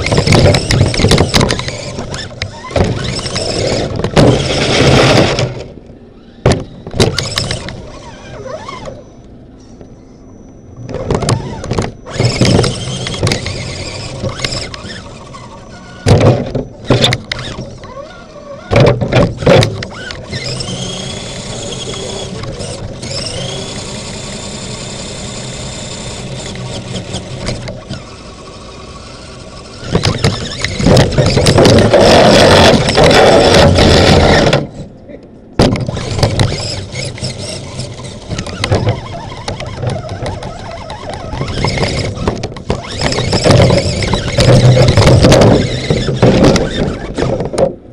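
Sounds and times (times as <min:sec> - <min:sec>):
knocks and rattles: 0:00.0 - 0:05.7, 0:16.0 - 0:17.9, 0:18.6 - 0:23.8, 0:29.8 - 0:34.8, 0:35.6 - 0:47.9
electric motor and gears whining: 0:00.0 - 0:47.9.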